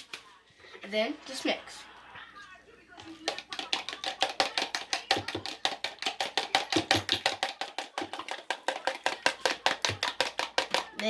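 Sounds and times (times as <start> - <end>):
whisk clicking against bowl: 3.0 - 11.0.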